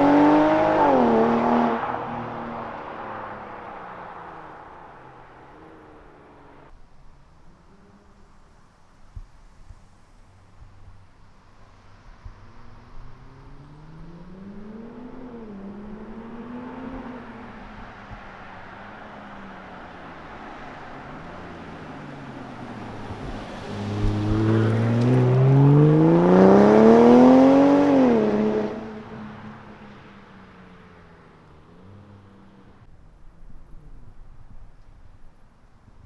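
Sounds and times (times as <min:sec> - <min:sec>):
car engine accelerating hard: 0:00.0 - 0:06.7, 0:21.4 - 0:29.7.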